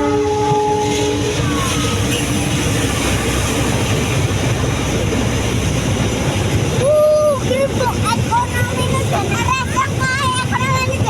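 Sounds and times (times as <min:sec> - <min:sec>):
train horn chord: 0:00.0 - 0:02.4
train rumbling past: 0:00.0 - 0:11.0.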